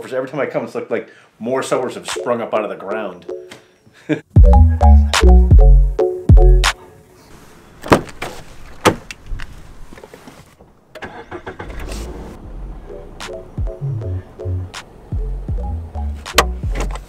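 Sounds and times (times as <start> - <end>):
background music: 2.0 - 3.7, 4.4 - 6.9, 12.4 - 17.0
car engine starting and running: 10.9 - 17.0.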